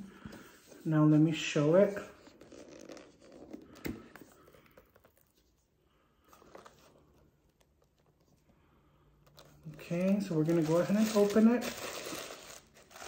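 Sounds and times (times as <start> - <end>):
gift box packaging rustling: 9.2 - 13.0.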